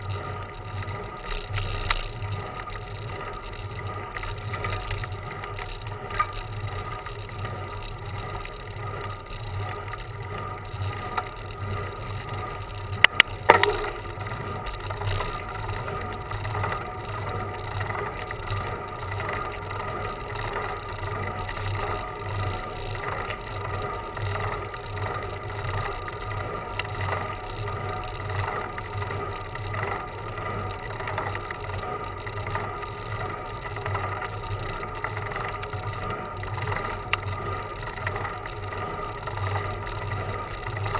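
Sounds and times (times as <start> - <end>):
bicycle rolling on road: 0.0 - 40.9
sharp clacks: 13.0 - 14.1.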